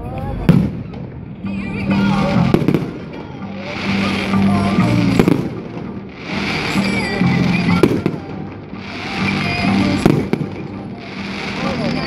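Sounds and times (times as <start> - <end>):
fireworks crackling: 0.0 - 12.0
music: 0.0 - 12.0
firework bangs: 0.4 - 12.0.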